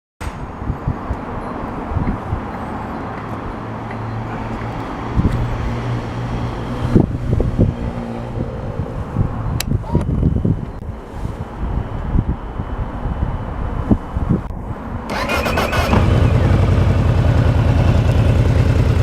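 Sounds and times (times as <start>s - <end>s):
motorcycle engine idling: 15.9s - 19.0s.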